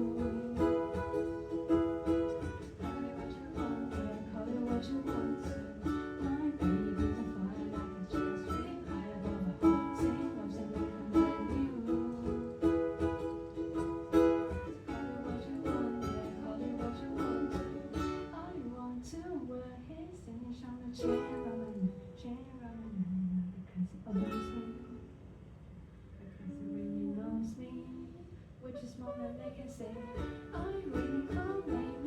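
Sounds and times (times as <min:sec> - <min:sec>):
ukuleles strumming chords: 0:00.0 - 0:19.5, 0:20.7 - 0:22.4, 0:24.1 - 0:25.2, 0:29.0 - 0:32.0.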